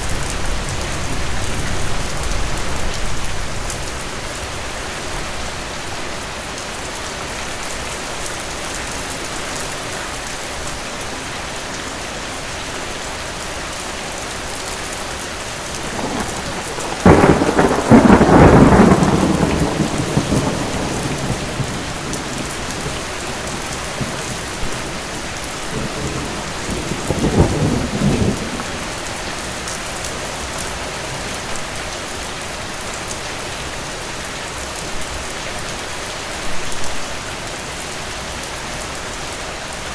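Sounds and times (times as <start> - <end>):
thunder rumbling: 0.0 - 4.7, 15.6 - 29.9
heavy rain: 0.0 - 39.9.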